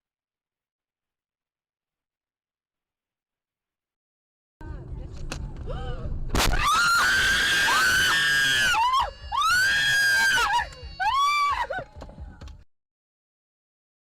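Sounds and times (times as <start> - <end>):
person screaming: 6.6 - 11.8.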